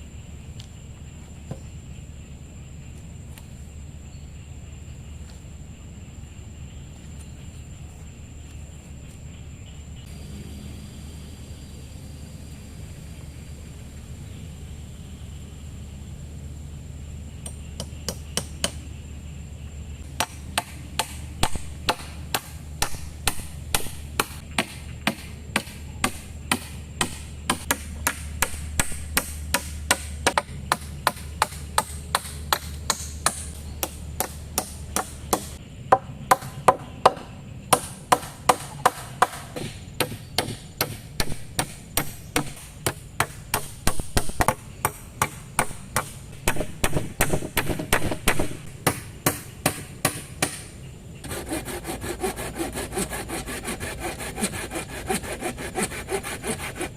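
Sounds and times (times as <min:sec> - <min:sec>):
low steady rumble: 0:00.0 - 0:56.8
blade chopping bamboo: 0:20.1 - 0:35.6, 0:36.3 - 0:56.9.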